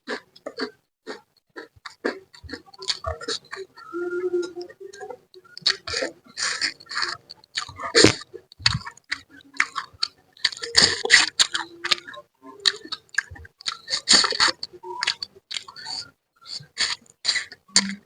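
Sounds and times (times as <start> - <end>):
wet chewing and slurping: 0.1 - 3.7, 5.5 - 18.0
crunchy clicks: 4.4 - 18.0.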